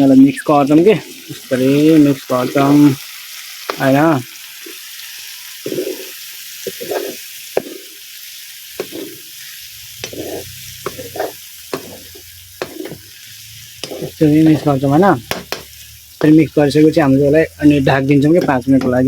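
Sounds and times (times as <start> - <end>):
curry sizzling in a pan: 0.0 - 19.0
spoon scraping and knocking pan: 5.6 - 8.1, 8.7 - 9.4, 10.0 - 13.2, 13.8 - 19.0.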